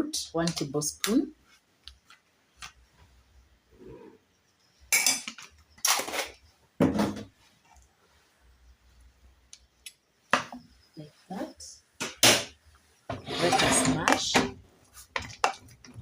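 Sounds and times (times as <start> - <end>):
metal spoon scraping a pot: 13.2 - 14.3.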